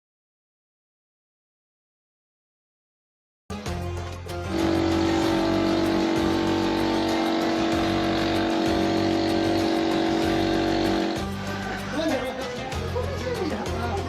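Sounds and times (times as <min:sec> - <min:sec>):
motorcycle engine revving steadily: 0:04.5 - 0:11.2.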